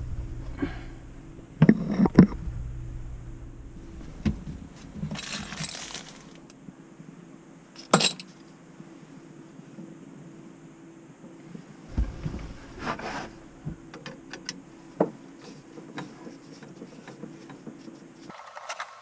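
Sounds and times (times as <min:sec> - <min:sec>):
brief rustle: 0:04.8 - 0:06.5, 0:18.3 - 0:19.0
clinks and knocks: 0:05.1 - 0:06.4, 0:18.3 - 0:19.0.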